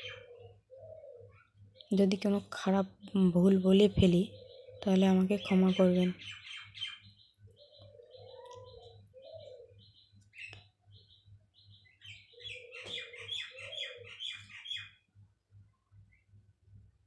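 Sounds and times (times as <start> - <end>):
lower bird calls: 0.0 - 2.0, 3.6 - 15.1
birds chirping: 0.0 - 16.4.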